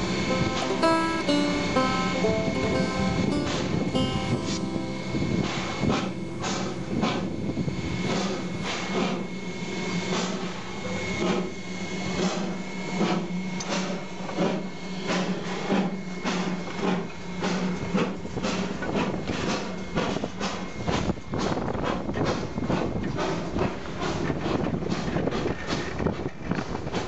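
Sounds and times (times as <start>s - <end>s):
steady hum: 0.0s - 11.6s
steam locomotive chuffing: 0.0s - 27.0s.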